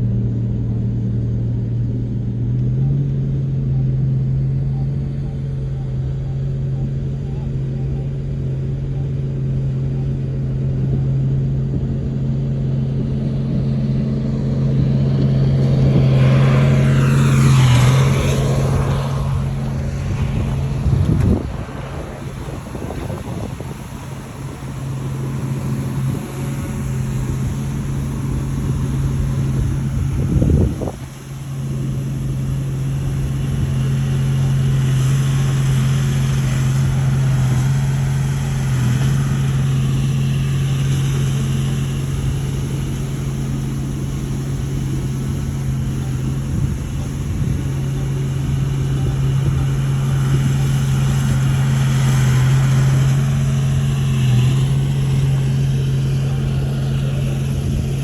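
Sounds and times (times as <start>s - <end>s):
bulldozer diesel engine running: 13.0s - 58.0s.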